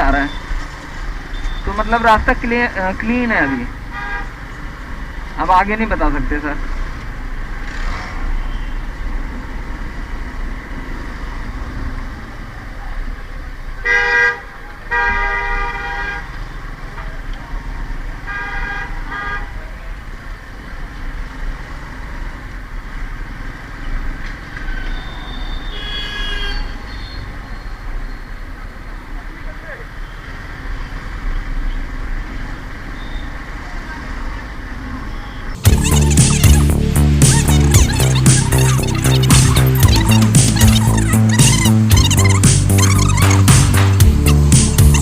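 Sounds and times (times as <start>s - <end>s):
engine and road rumble: 0.0s - 45.0s
vehicle horns honking: 3.4s - 4.5s, 8.4s - 8.9s, 13.8s - 16.3s, 18.2s - 19.6s, 24.6s - 27.4s
high-pitched horn: 35.6s - 45.0s.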